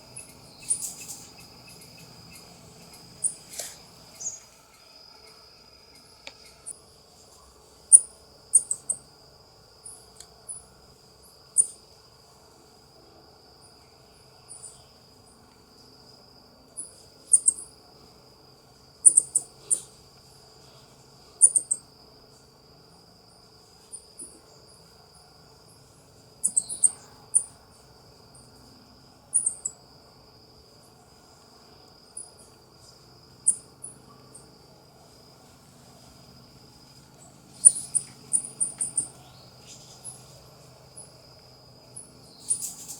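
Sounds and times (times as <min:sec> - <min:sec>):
coati high-pitched chirps: 0:00.0 - 0:04.5, 0:07.9 - 0:09.0, 0:17.3 - 0:17.6, 0:19.0 - 0:19.9, 0:21.4 - 0:21.8, 0:26.4 - 0:27.5, 0:29.4 - 0:29.8, 0:37.5 - 0:40.2, 0:42.0 - 0:42.9
faint high-pitched hum: 0:00.0 - 0:42.9.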